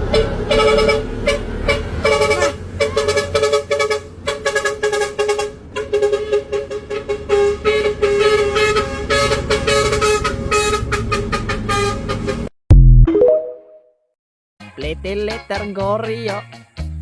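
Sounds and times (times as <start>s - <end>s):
truck horns tooting: 0.0s - 12.5s.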